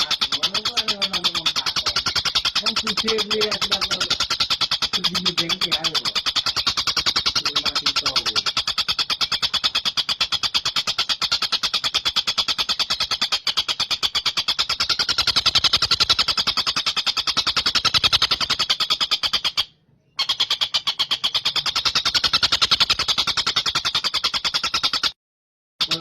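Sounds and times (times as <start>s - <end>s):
kingfisher chattering call: 0.0s - 25.0s.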